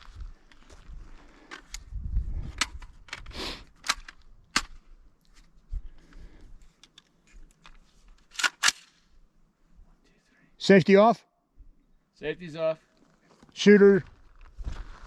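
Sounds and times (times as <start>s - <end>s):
rifle metallic clicks and clacks: 2.6s - 4.8s, 6.8s - 9.0s.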